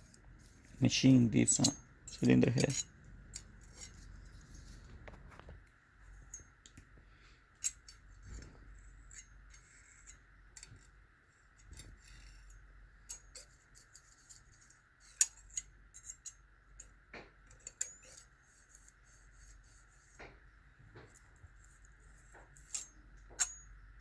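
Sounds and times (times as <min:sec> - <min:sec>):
metal hand tools clicking: 0:01.5 - 0:04.0.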